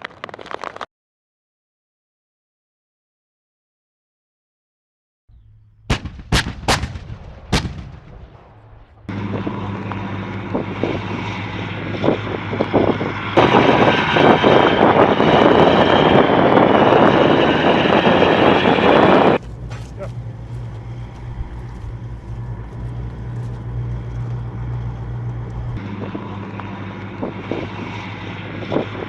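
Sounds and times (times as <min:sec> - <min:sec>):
sharp gunshots: 0:05.3 - 0:09.1
heavy vehicle engine running: 0:05.3 - 0:29.0.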